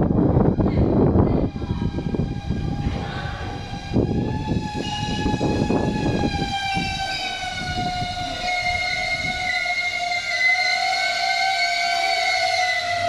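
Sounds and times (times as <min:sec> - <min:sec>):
high whine falling in pitch: 0:00.0 - 0:13.0
train wheels rumbling and knocking: 0:00.0 - 0:13.0.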